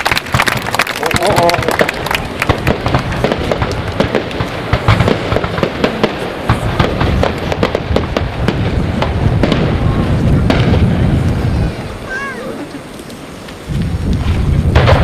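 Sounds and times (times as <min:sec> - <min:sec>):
fireworks cracking and popping: 0:00.0 - 0:15.0
low rumble of booms: 0:02.5 - 0:12.0, 0:13.7 - 0:15.0.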